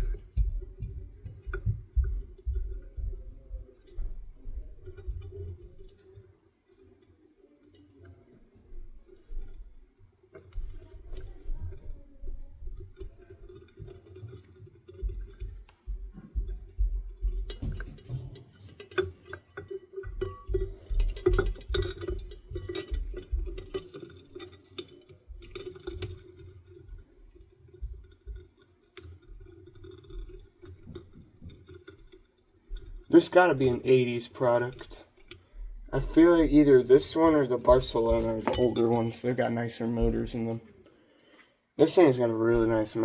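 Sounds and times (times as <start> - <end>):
steady low hum: 0.0 - 41.2
metal parts clinking: 20.2 - 26.5, 38.2 - 39.8.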